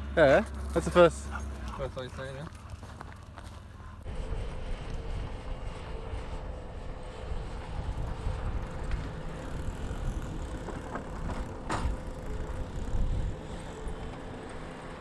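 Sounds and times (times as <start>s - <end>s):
engine rumbling: 0.0s - 15.0s.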